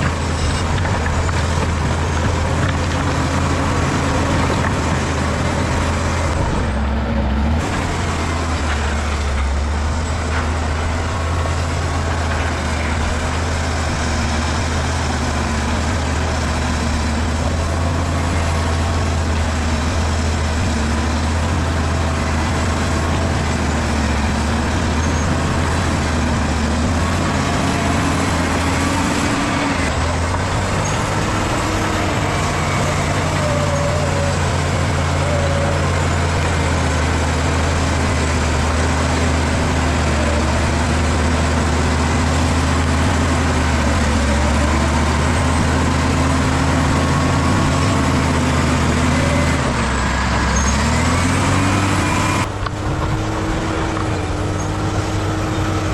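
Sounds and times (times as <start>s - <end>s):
diesel engine humming: 0.0s - 55.9s.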